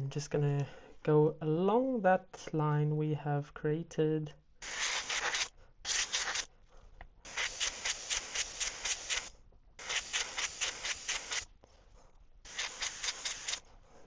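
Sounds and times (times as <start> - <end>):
airbrush hissing: 4.6 - 6.5, 7.2 - 11.5, 12.4 - 13.7.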